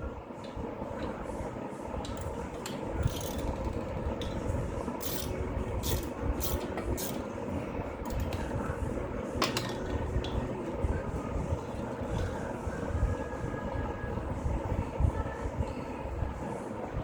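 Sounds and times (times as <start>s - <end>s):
steady low rumble: 0.0s - 17.0s
metal tools clinking and scraping: 5.0s - 7.2s, 8.1s - 8.4s.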